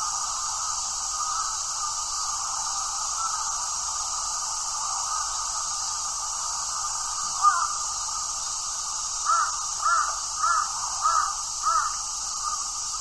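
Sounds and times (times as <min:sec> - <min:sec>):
steady high hiss: 0:00.0 - 0:13.0
bird calling: 0:07.4 - 0:07.7, 0:09.3 - 0:12.6.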